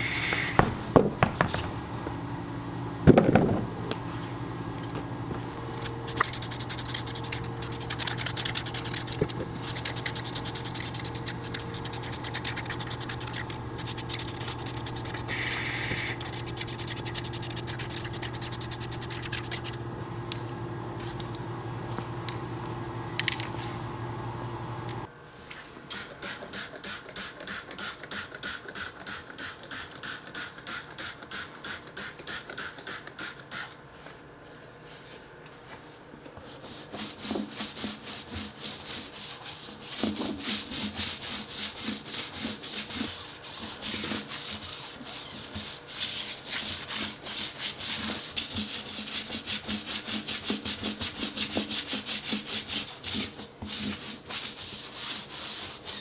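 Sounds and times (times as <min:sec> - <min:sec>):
steady hum: 0:00.0 - 0:25.2
scrubbing a tire by hand: 0:06.1 - 0:19.8, 0:36.6 - 0:56.0.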